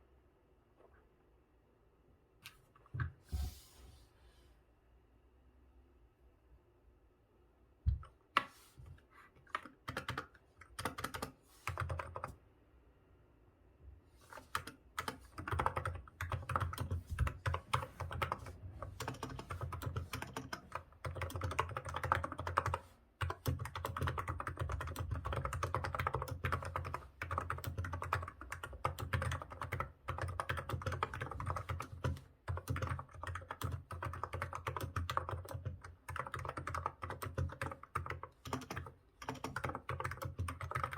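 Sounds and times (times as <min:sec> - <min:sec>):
keyboard typing: 0:09.4 - 0:12.4, 0:14.3 - 0:40.9.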